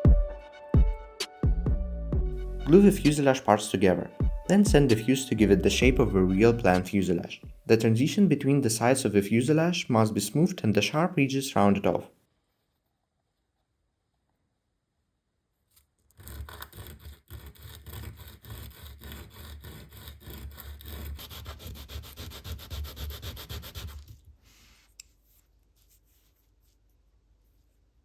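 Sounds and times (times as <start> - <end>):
sandpaper rubbing on wood: 16.2 - 24.9.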